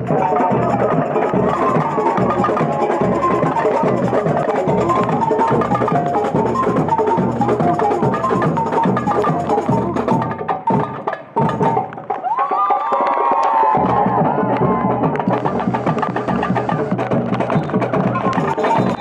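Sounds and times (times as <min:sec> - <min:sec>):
pitched melody: 0:00.0 - 0:12.0
samba drums and percussion: 0:00.0 - 0:19.0.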